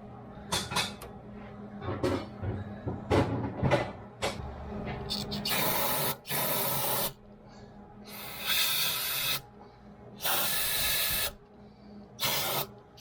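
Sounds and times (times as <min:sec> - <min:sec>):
short hissing sprays: 0:12.2 - 0:12.7.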